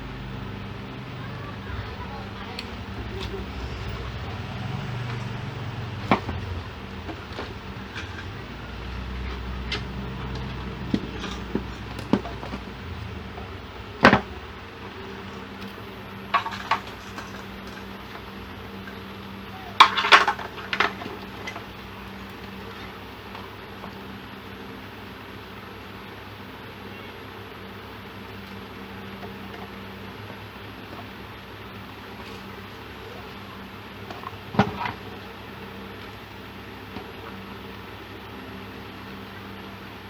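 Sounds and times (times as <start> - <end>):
steady low hum: 0.0 - 40.0
clattering: 16.3 - 17.9
tools and small parts clinking: 16.3 - 18.0, 19.8 - 21.7.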